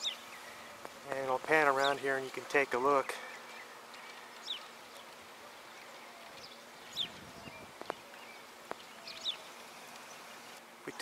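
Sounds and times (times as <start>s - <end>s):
small bird chirping: 0.0s - 2.2s, 3.0s - 11.0s.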